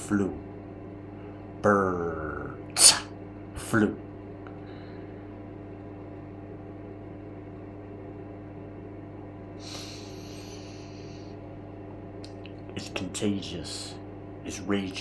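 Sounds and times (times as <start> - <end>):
low electrical hum: 0.0 - 15.0
breathy hiss: 9.6 - 11.4.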